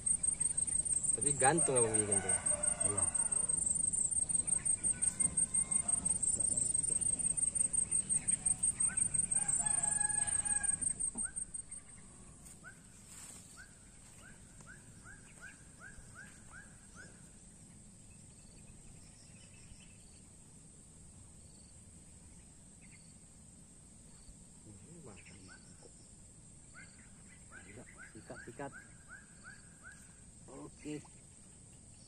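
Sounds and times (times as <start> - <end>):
high-pitched insect trill: 0.0 - 17.4, 22.8 - 32.0
rooster crowing: 1.1 - 12.0.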